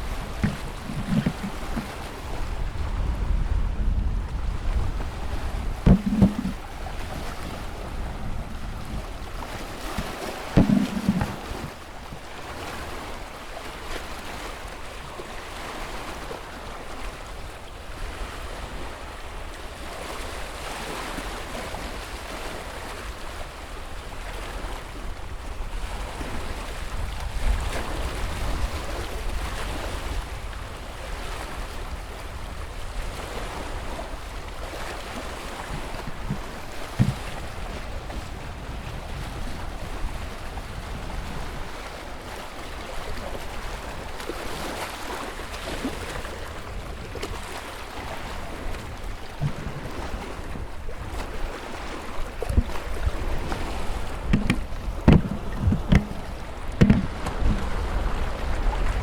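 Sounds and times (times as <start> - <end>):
wind rumble on microphone: 0.0 - 13.2, 14.2 - 59.0
ocean surf washing: 0.0 - 17.0, 33.0 - 59.0
brief knock: 0.2 - 1.9, 5.9 - 6.6, 10.0 - 11.8, 36.0 - 37.4, 54.3 - 57.7.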